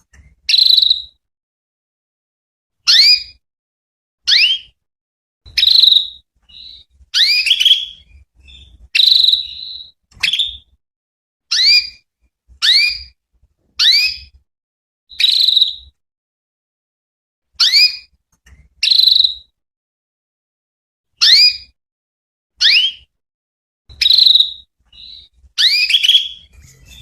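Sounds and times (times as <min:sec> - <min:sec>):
canary chirping: 0:00.3 - 0:01.2, 0:02.9 - 0:03.4, 0:04.3 - 0:04.8, 0:05.5 - 0:10.8, 0:11.5 - 0:13.2, 0:13.8 - 0:14.4, 0:15.1 - 0:15.9, 0:17.6 - 0:19.5, 0:22.6 - 0:23.1, 0:23.9 - 0:27.0.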